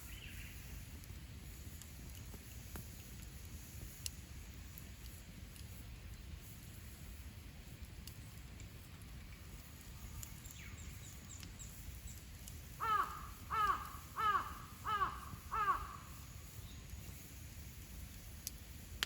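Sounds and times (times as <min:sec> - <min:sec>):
crow cawing: 0:12.8 - 0:16.2.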